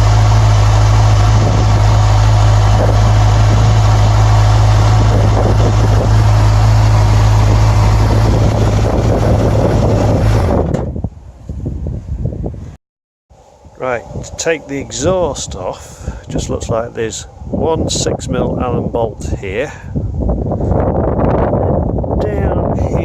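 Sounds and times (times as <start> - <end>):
motorcycle engine idling: 0.0 - 10.4.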